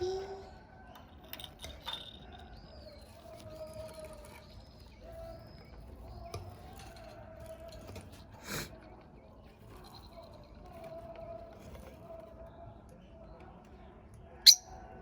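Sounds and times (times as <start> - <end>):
high bird peeps: 14.5 - 14.7.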